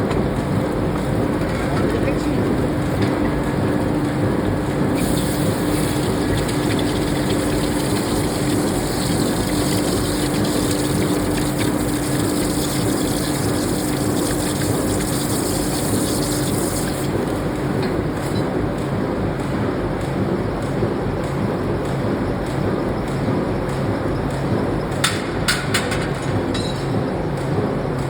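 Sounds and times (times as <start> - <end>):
industrial machinery noise: 0.0 - 28.0.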